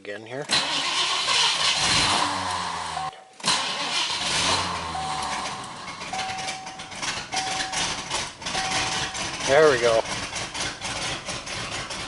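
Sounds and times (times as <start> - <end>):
car engine running unevenly: 4.2 - 12.0.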